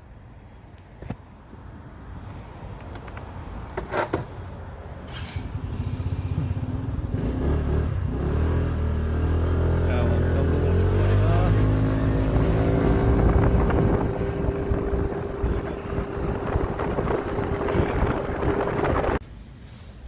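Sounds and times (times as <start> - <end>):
motorcycle engine running: 9.9 - 19.2.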